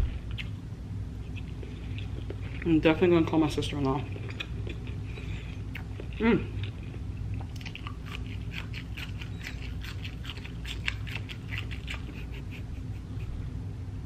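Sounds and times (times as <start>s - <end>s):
close chewing crunches: 3.7s - 12.3s.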